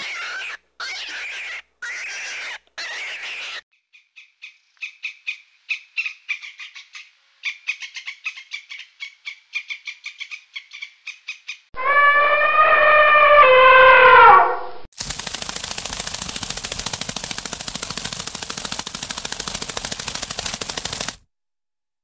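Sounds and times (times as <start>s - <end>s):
loud pitched animal call: 0.0s - 3.6s, 11.8s - 14.8s.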